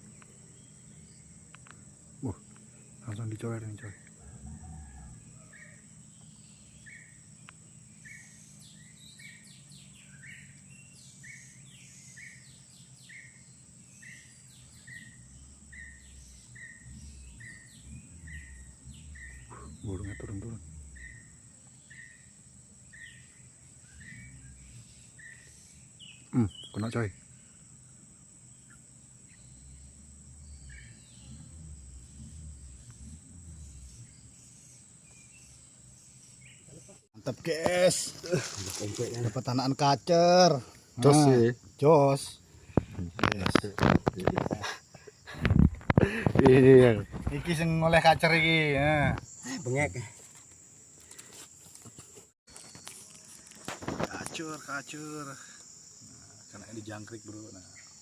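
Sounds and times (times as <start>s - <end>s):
high-pitched insect buzzing: 4.4s - 37.0s
high varied bird chirps: 4.8s - 37.1s
steady high whine: 14.5s - 26.0s, 28.5s - 36.2s
low rumble: 15.1s - 21.4s, 29.4s - 34.6s.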